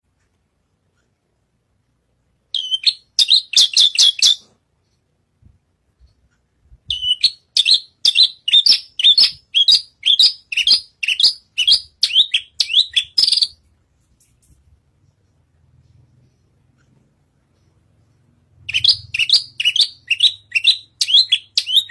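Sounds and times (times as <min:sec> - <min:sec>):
bird chirping: 0:02.5 - 0:04.6, 0:06.8 - 0:13.8, 0:15.0 - 0:21.9.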